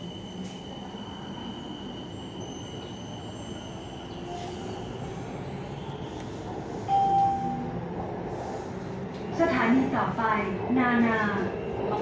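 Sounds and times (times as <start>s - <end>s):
train carriage rumble: 0.0s - 12.0s
short tone: 6.9s - 7.7s.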